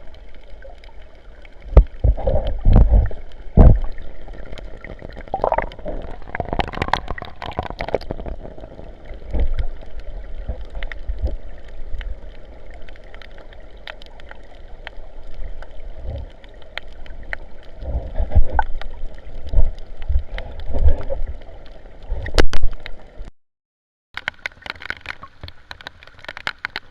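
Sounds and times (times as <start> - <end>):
sea water splashing: 0.0 - 23.2, 24.2 - 26.9
irregular thumps: 1.7 - 4.1.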